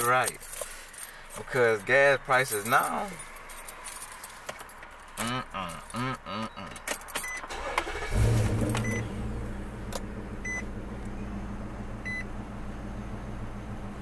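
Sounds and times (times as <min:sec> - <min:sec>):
dashboard warning chime beeps: 0:06.5 - 0:07.7, 0:08.8 - 0:09.1, 0:10.4 - 0:10.6, 0:12.0 - 0:12.3
car engine starting and idling: 0:06.8 - 0:14.0.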